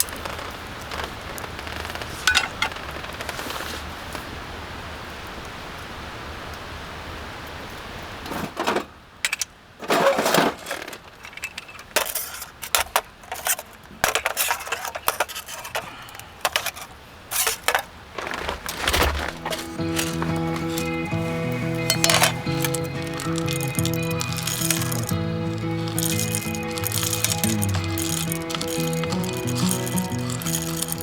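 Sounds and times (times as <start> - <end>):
objects clicking and clinking: 9.3 - 31.0.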